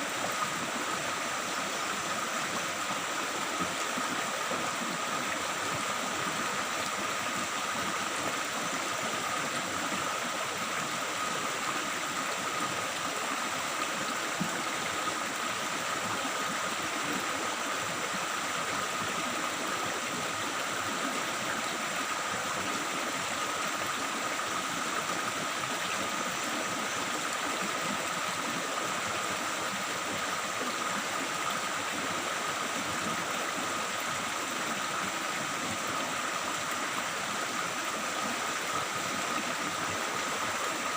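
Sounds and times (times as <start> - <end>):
stream babbling over rocks: 0.0 - 40.9.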